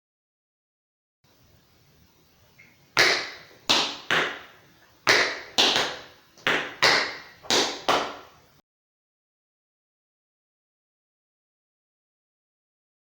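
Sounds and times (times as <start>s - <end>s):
tap shoes clicking on hard floor: 3.0s - 8.4s.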